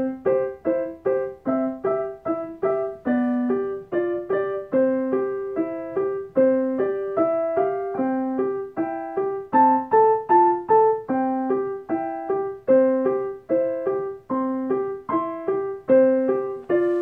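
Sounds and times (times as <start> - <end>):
piano playing simple melody: 0.0 - 17.0.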